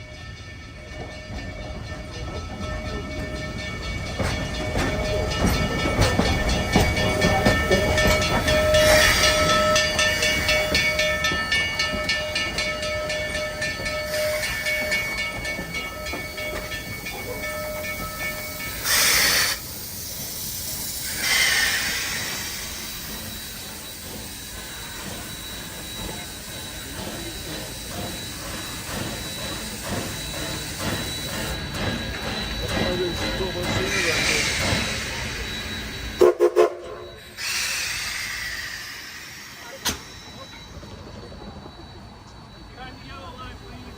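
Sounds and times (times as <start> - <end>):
steady ringing tone: 0.0 - 18.9, 22.2 - 36.2, 38.5 - 43.9
train cars clattering over rail joints: 0.8 - 19.5
steam hiss bursts: 4.4 - 42.1.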